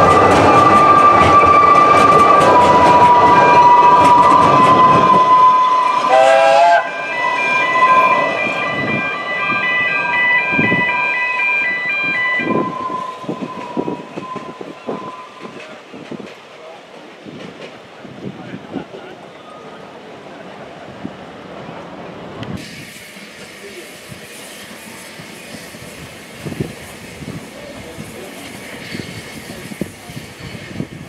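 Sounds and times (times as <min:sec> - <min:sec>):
train whistle blast: 0:00.0 - 0:15.6
train coaches rumbling: 0:00.0 - 0:31.0
wheels squealing: 0:22.8 - 0:31.0.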